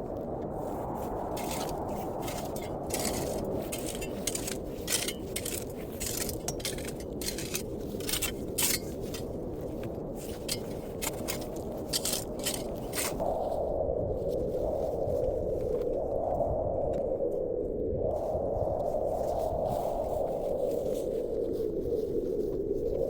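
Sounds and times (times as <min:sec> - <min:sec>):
sharp crackles and scrapes: 0:00.0 - 0:17.1, 0:18.2 - 0:23.0
steady wind noise: 0:00.0 - 0:23.0.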